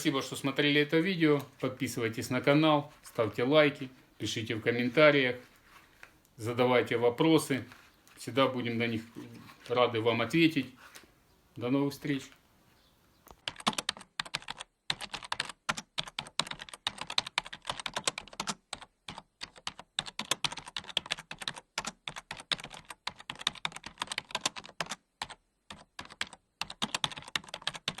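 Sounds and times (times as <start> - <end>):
computer keyboard typing: 13.4 - 28.0.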